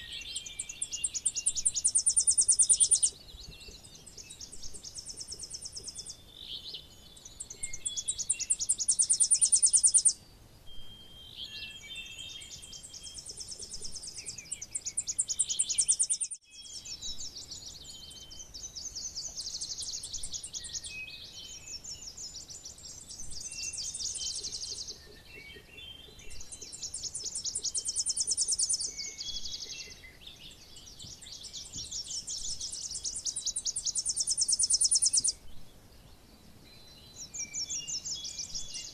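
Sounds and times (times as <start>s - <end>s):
bird singing rapid high chips: 0.0s - 3.2s, 7.3s - 10.2s, 12.6s - 16.4s, 26.2s - 29.7s, 31.5s - 35.4s
faint bird chirps: 0.0s - 38.9s.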